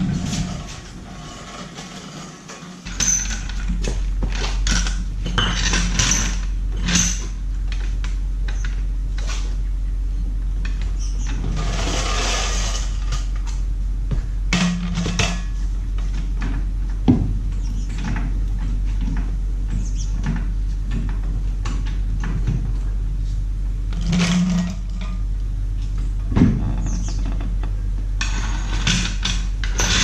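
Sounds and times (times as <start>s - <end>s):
scraping or rustling: 0.0s - 9.6s, 10.7s - 13.6s, 14.3s - 25.2s, 28.2s - 30.0s
steady low hum: 0.0s - 30.0s
metal clinks and clatter: 2.8s - 3.8s.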